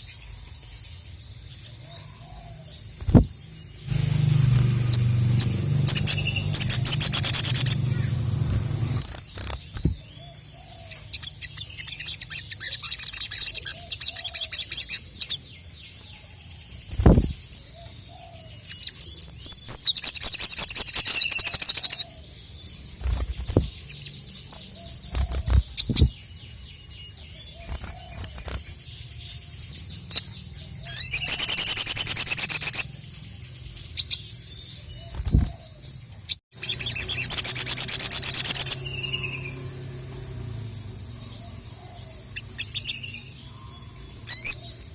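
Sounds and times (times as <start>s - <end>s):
bird singing rattling trills: 0.0s - 44.9s
thin bird chirps: 0.0s - 44.9s
low thumps: 3.0s - 9.1s, 9.8s - 10.0s, 17.0s - 17.3s.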